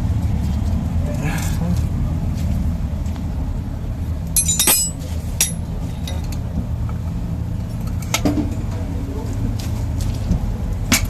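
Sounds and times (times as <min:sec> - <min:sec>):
metal parts clinking: 0:04.4 - 0:06.2.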